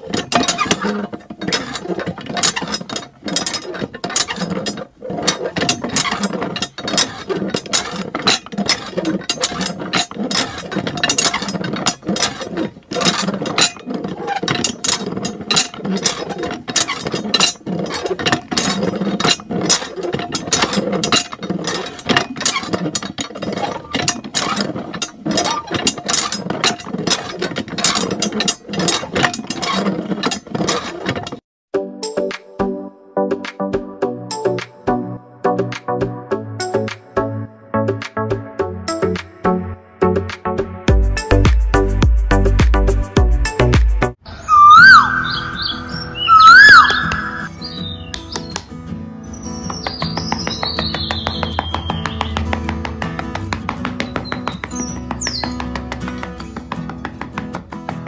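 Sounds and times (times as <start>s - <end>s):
hand pump rapid clicks: 0.0s - 31.4s, 46.3s - 58.0s.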